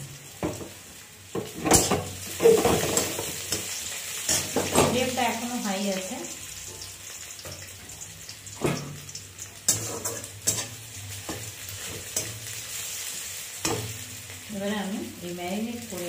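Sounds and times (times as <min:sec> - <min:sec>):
onions sizzling in hot oil: 0:00.0 - 0:16.0
metal ladle scraping pan: 0:09.6 - 0:14.3.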